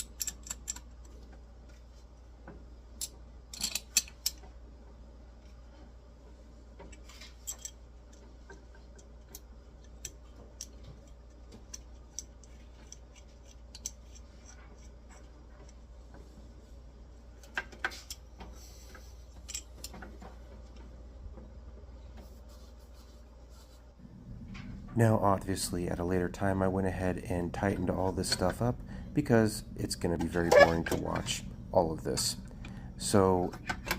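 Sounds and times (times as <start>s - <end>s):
metallic clicks of tools and bolts: 0.0s - 1.3s, 3.0s - 4.5s, 6.8s - 15.8s, 17.4s - 18.3s, 18.9s - 20.3s
faint low hum: 0.0s - 33.9s.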